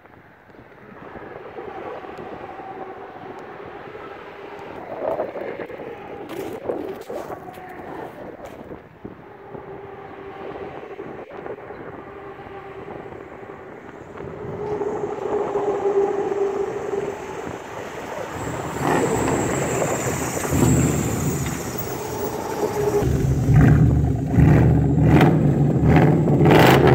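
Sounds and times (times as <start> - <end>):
engine running through exhaust: 13.8 - 26.9.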